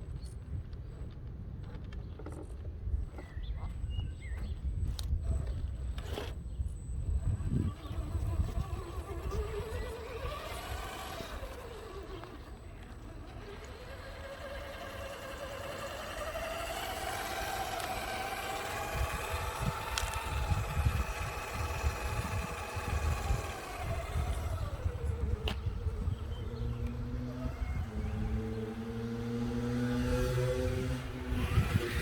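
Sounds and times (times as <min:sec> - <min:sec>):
electric motor whining: 0:05.3 - 0:32.0
rough rumble: 0:07.0 - 0:32.0.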